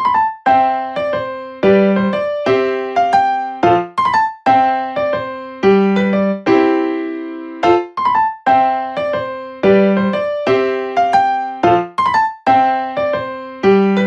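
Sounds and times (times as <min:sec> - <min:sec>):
gentle keyboard melody: 0:00.0 - 0:14.0.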